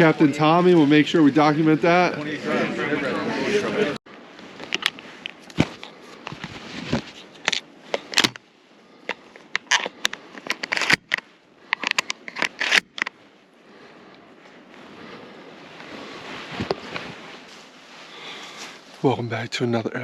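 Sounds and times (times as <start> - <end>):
scrapes and rustles: 4.3 - 13.3, 13.9 - 19.3.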